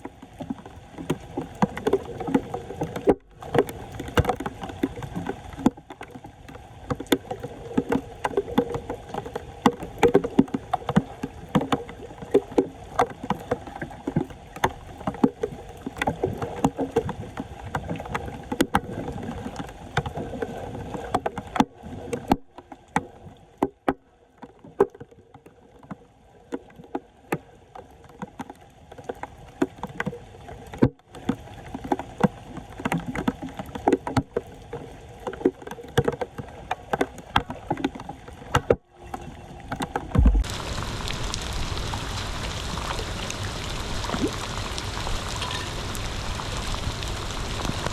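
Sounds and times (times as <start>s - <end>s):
floodwater splashing and sloshing: 0.0s - 47.9s
sharp knocks and clicks: 35.4s - 40.5s.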